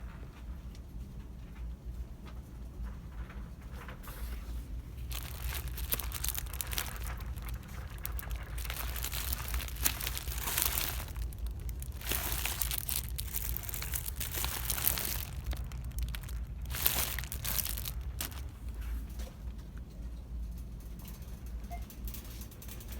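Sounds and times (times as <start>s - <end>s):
crinkling and rustling: 2.8s - 22.9s
steady low hum: 4.4s - 22.7s.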